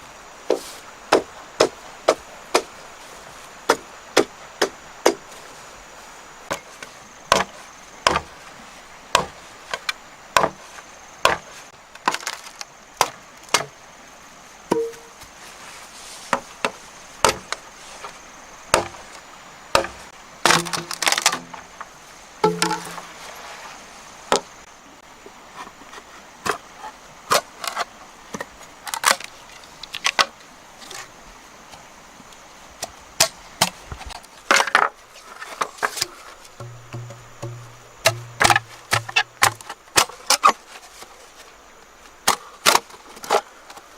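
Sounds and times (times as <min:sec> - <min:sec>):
blade chopping wood: 0:07.3 - 0:08.3, 0:09.1 - 0:10.6, 0:11.2 - 0:13.7, 0:14.7 - 0:15.1, 0:16.3 - 0:17.6, 0:18.7 - 0:19.1, 0:19.7 - 0:21.6, 0:22.4 - 0:23.0, 0:35.8 - 0:40.6.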